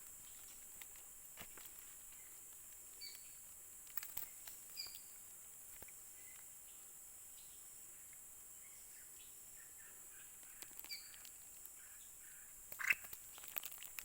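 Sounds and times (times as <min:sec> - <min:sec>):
insect buzz: 0:00.0 - 0:14.0
faint bird chirps: 0:02.0 - 0:03.4, 0:04.2 - 0:05.2, 0:05.9 - 0:13.6.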